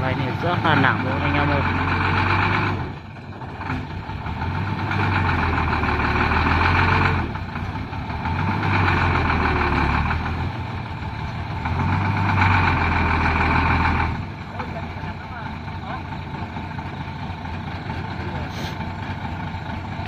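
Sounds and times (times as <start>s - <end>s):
diesel truck engine surging: 0.0s - 20.0s.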